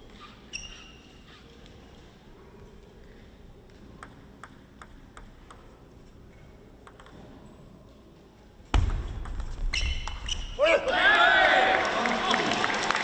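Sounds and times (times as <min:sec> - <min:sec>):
low hall noise: 0:00.0 - 0:13.0.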